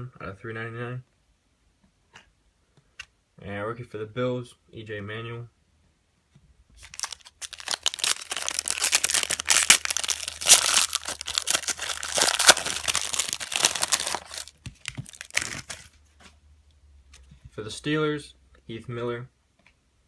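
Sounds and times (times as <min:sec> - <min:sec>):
wrapper being torn and crinkled: 0:06.8 - 0:16.0.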